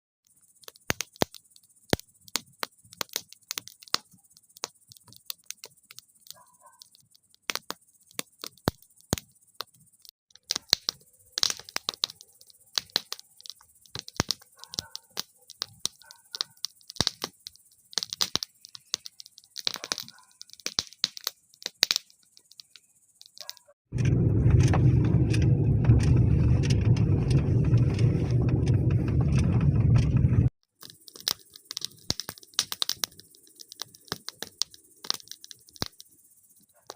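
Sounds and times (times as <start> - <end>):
campfire crackling: 0.4 - 36.9
low rushing noise: 23.9 - 30.5.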